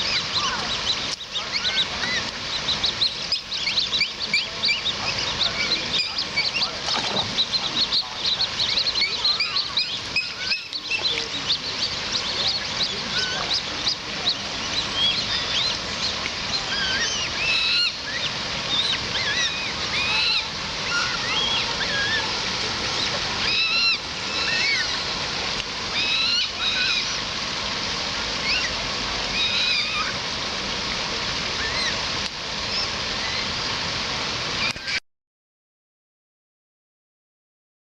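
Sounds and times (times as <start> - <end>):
birds chirping: 0.0 - 27.3, 28.4 - 30.2
steady rushing noise: 0.0 - 29.4.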